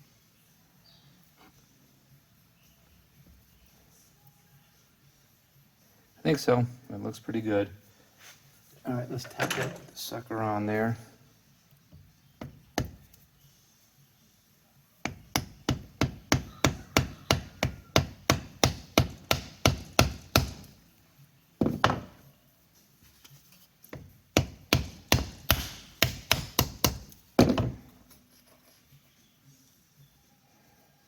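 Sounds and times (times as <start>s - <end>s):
hammer tapping on metal: 24.0s - 27.8s.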